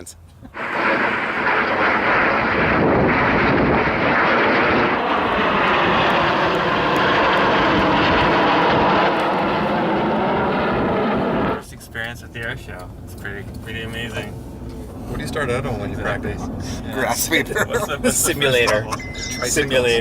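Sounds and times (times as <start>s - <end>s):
jets flying past: 0.5s - 12.5s.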